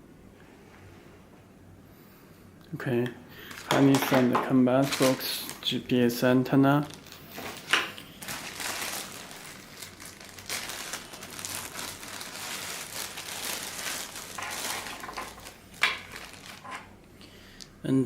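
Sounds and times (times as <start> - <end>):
packaging crinkling and rustling: 3.4 - 17.0.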